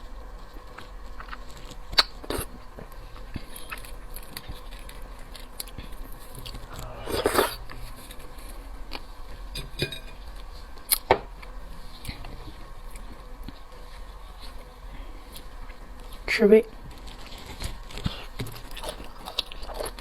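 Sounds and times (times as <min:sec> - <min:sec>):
soft chewing and mouth sounds: 0:00.0 - 0:20.0.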